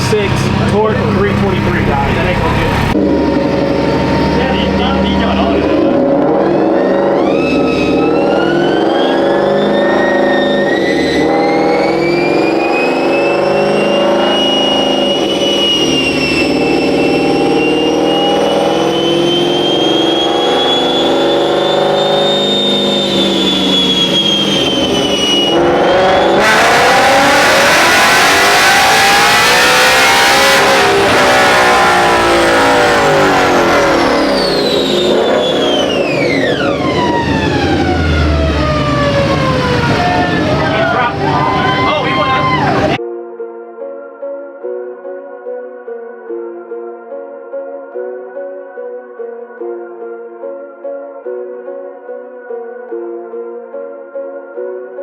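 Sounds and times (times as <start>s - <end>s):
vehicle engine whining: 0.0s - 43.0s
loud rushing noise: 20.0s - 43.0s.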